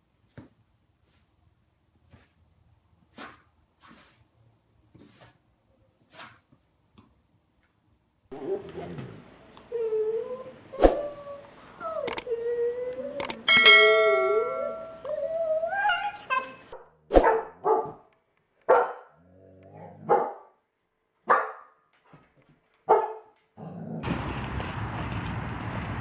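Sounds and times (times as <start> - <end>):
dog whining: 9.7 - 16.8
dog barking: 17.2 - 19.2, 20.0 - 20.6, 21.2 - 21.8, 22.8 - 23.4.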